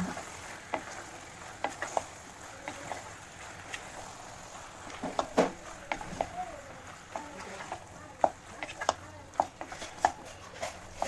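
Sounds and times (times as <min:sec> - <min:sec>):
spoon stirring thick sauce: 0:00.1 - 0:11.0
spoon knocking against pan: 0:04.9 - 0:06.4, 0:07.1 - 0:11.0.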